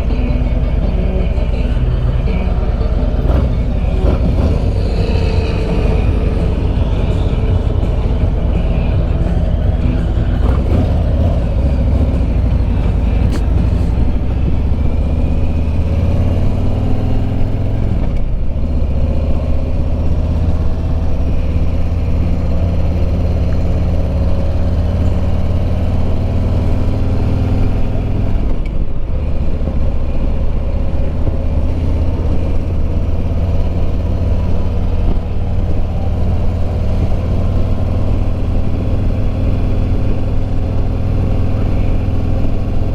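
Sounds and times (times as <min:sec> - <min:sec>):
motorcycle engine at road speed: 0:00.0 - 0:42.9.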